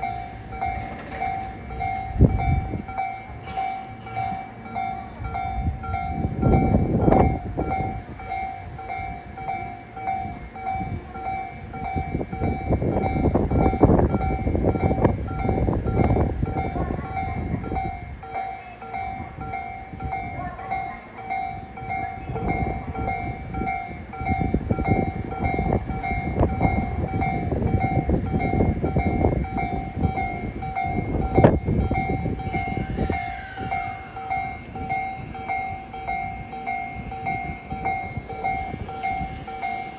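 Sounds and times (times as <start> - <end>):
level crossing warning bell: 0.0 - 39.9
train wheels rumbling: 0.0 - 39.9
falling high-pitched tone: 32.3 - 39.9.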